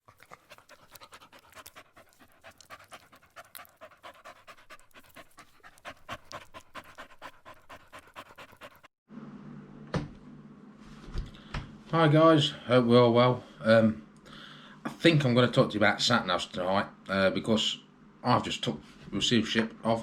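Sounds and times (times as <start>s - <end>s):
dog panting quickly: 0.0s - 9.0s.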